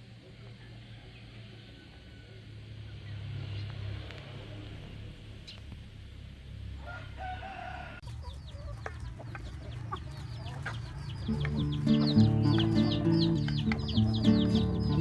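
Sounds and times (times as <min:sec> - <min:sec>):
high-pitched falling chicken calls: 0:06.8 - 0:09.6
chicken clucking: 0:06.8 - 0:15.0
background music: 0:11.2 - 0:15.0.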